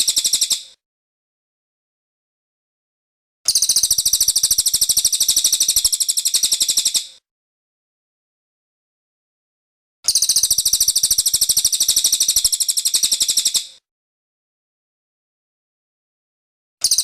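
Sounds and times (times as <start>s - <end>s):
bird trilling: 10.1s - 13.7s.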